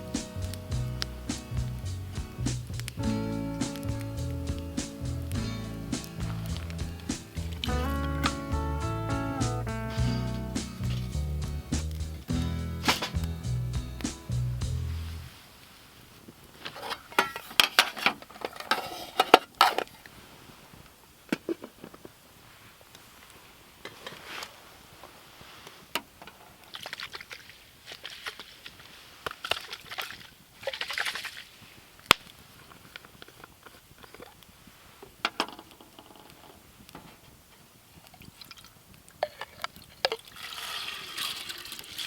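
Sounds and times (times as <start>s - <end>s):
rustling and crinkling: 0.0s - 8.3s, 14.4s - 42.0s.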